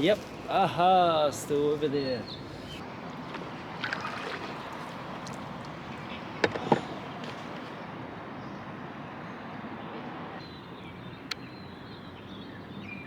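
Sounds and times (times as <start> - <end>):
boat paddling wash: 0.0 - 8.4.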